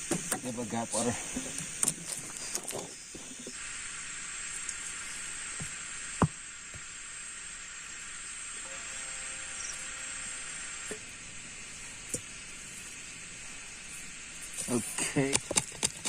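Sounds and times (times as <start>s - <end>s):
rain falling: 10.8s - 16.0s.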